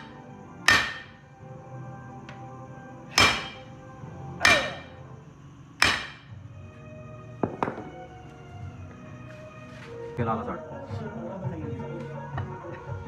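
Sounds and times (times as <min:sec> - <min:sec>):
hammer striking steel: 0:00.0 - 0:01.2, 0:03.1 - 0:03.7, 0:04.4 - 0:05.0, 0:05.8 - 0:06.3.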